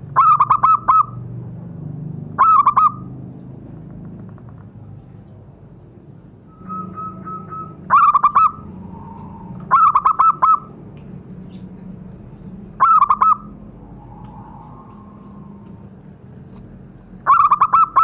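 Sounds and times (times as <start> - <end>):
low steady hum: 4.8 - 18.0
dove cooing: 6.6 - 10.8, 12.8 - 15.9, 17.2 - 18.0.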